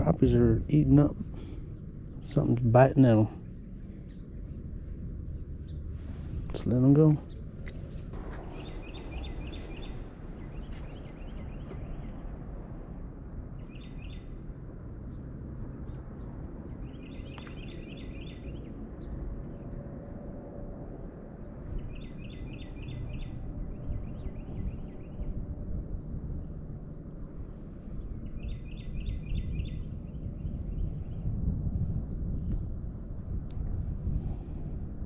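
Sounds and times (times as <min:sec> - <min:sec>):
songbird chirping: 0:00.0 - 0:19.8, 0:21.7 - 0:25.4, 0:27.9 - 0:31.3
low outdoor background rumble: 0:00.0 - 0:35.0.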